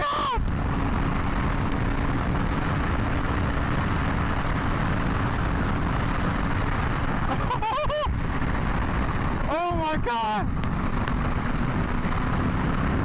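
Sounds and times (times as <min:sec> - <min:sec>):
motorcycle engine at speed: 0:00.0 - 0:13.0
wind rush: 0:00.0 - 0:13.0.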